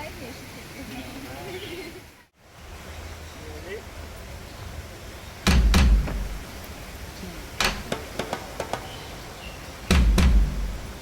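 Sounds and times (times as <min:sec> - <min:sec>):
sharp knock: 0:05.5 - 0:06.5, 0:07.6 - 0:09.0, 0:09.9 - 0:11.0
heavy thuds: 0:05.5 - 0:06.8, 0:07.6 - 0:08.9, 0:09.9 - 0:11.0.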